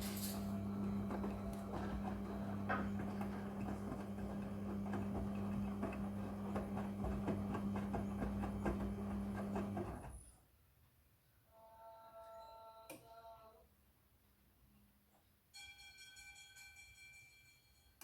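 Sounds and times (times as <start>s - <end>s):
washing machine motor hum: 0.0s - 10.2s.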